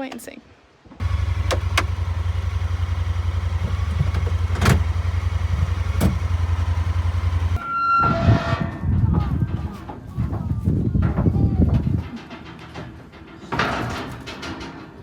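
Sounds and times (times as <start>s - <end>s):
vehicle engine droning: 1.0s - 7.6s.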